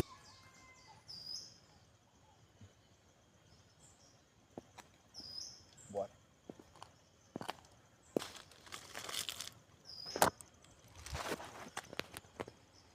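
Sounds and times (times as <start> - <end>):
high bird chirps: 5.2 - 6.1, 9.8 - 10.3.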